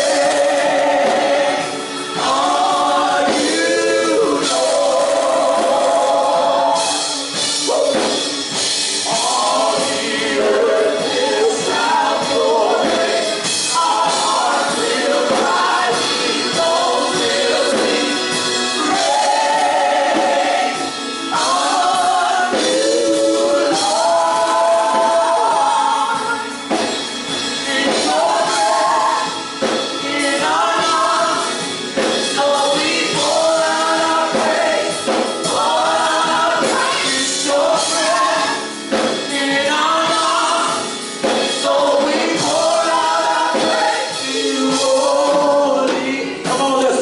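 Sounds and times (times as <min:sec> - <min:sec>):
choir singing: 0:00.0 - 0:47.0
instrumental backing: 0:00.0 - 0:47.0.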